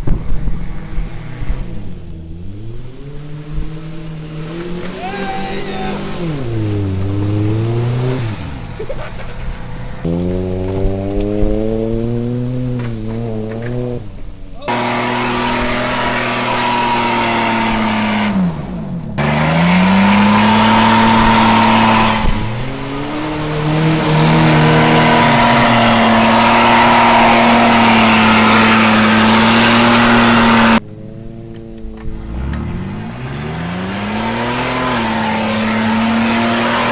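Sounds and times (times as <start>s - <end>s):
car engine revving hard: 0.6s - 30.8s, 32.1s - 36.9s
loud rushing noise: 19.2s - 30.8s.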